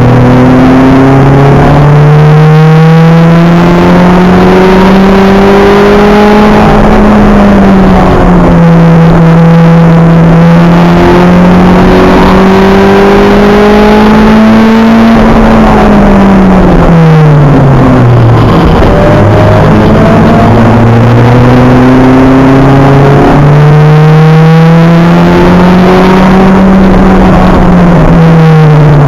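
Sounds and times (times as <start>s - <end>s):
race car engine revving: 0.0s - 29.0s.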